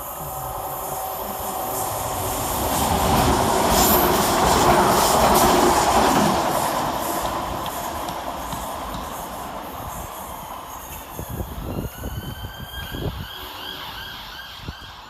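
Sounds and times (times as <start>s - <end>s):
electric train passing: 0.0s - 15.0s
train wheels clicking: 0.8s - 12.2s.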